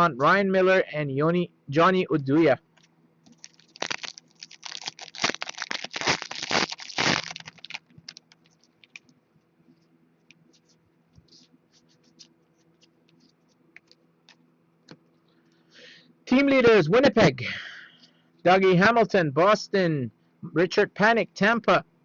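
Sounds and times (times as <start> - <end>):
card pack wrapper tearing and crinkling: 3.3 - 9.0.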